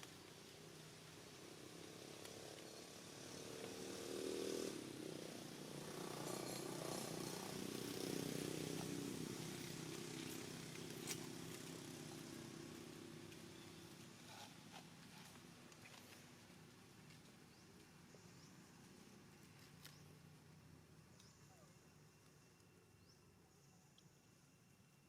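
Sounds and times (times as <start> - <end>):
vehicle engine passing by: 1.8 - 14.5.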